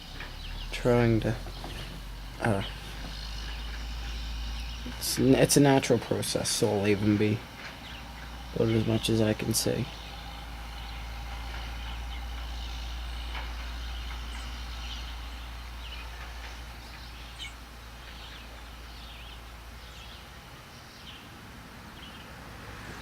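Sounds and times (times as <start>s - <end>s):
small birds chirping: 0.0s - 23.0s
steady low rumble: 0.0s - 23.0s.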